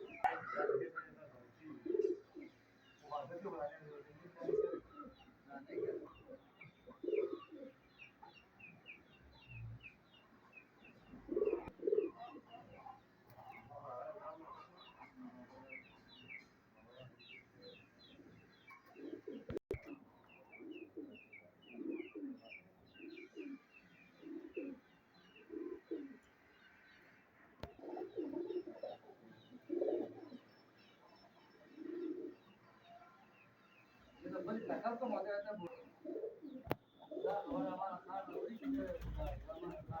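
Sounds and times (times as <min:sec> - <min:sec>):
pigeons cooing: 0:00.0 - 0:02.6, 0:04.2 - 0:08.4, 0:10.9 - 0:16.4, 0:18.0 - 0:26.3, 0:27.6 - 0:30.5, 0:31.6 - 0:32.6, 0:35.7 - 0:40.0.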